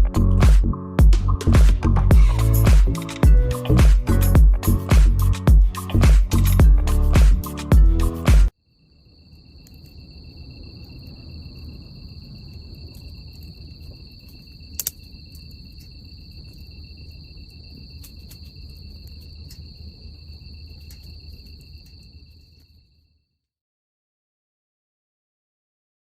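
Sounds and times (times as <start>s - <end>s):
crickets trilling: 2.2s - 6.9s, 8.6s - 23.4s
small crackles: 9.3s - 23.0s.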